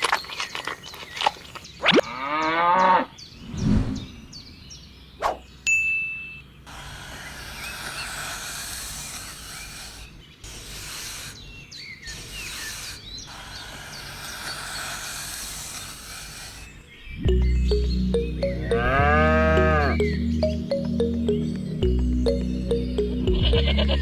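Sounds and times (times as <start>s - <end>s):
small birds chirping: 0.0s - 24.0s
steady rushing hiss: 6.7s - 17.0s.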